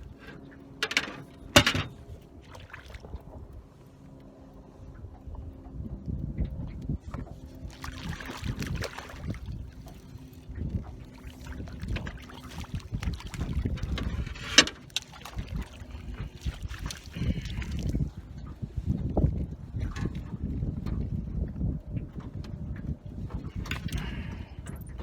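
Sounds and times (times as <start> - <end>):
knocks and rustles: 0.2 - 2.0
wind buffeting microphone: 4.8 - 25.0.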